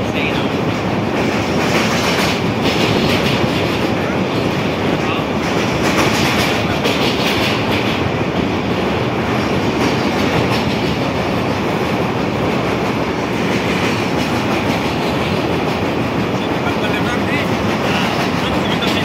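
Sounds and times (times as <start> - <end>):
train wheels rumbling on rails: 0.0 - 19.0
clicking over rail joints: 5.4 - 8.5.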